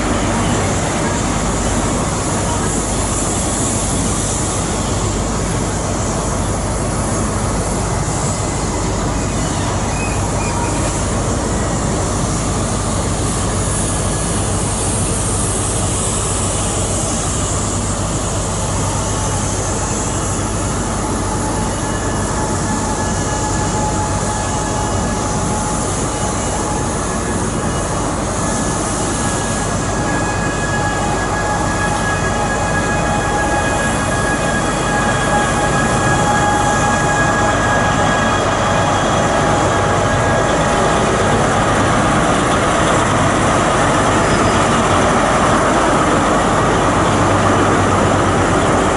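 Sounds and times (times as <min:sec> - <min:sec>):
train rumble and hiss: 0:00.0 - 0:48.9
wheel squeal: 0:08.0 - 0:12.4, 0:18.7 - 0:48.9.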